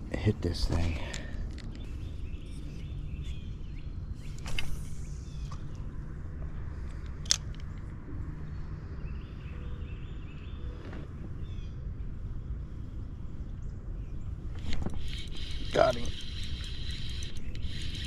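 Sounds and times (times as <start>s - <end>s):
bird chirping: 1.7s - 5.7s, 14.0s - 18.0s.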